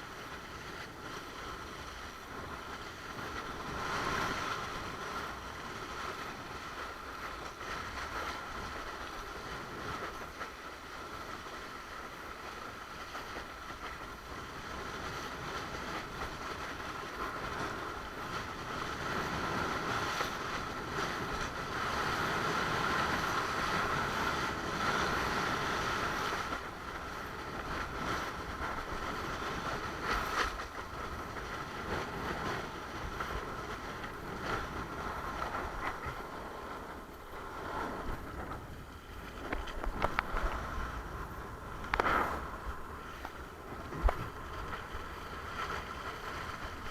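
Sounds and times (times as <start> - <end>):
wind buffeting microphone: 0.0 - 46.9
water rushing past board: 34.0 - 46.9.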